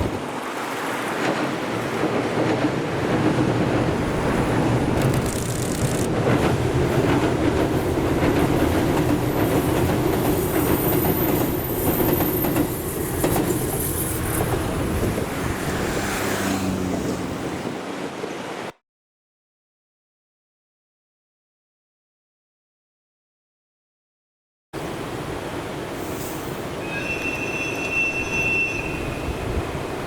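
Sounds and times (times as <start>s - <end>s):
train wheels rumbling on track: 0.0s - 18.2s.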